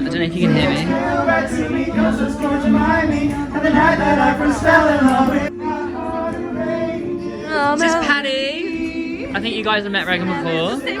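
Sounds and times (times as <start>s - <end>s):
music: 0.0s - 11.0s
voices singing together: 0.0s - 11.0s.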